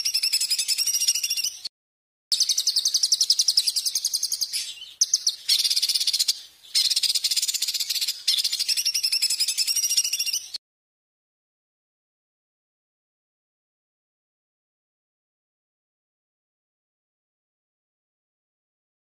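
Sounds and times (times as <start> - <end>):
songbird trilling: 0.0 - 1.7, 2.3 - 10.6.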